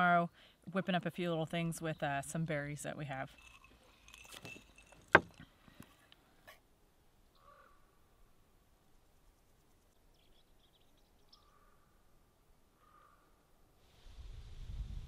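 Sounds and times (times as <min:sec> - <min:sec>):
faint distant bird calls: 0:03.3 - 0:13.8.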